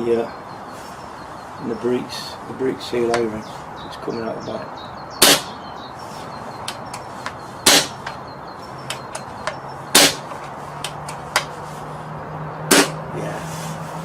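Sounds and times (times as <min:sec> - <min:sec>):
sharp gunshots: 0:05.2 - 0:05.6, 0:07.7 - 0:08.0, 0:10.0 - 0:10.3, 0:12.7 - 0:13.0.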